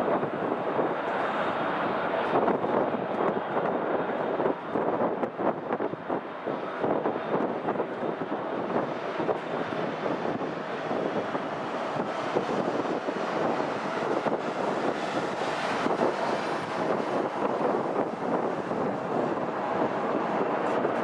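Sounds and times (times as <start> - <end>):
distant jet engines rushing: 0.0 - 21.0
wind buffeting microphone: 0.0 - 21.0.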